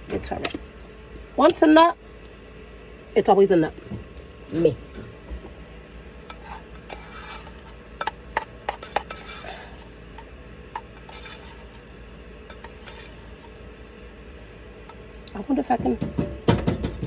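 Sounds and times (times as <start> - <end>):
spoon scraping a pot: 6.2 - 13.6.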